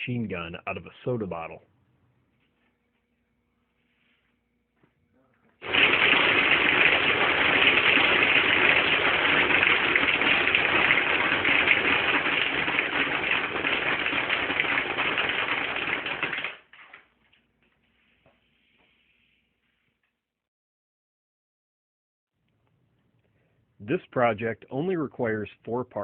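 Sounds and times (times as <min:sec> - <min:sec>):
air gun firing rapid rattle: 0:05.6 - 0:16.6.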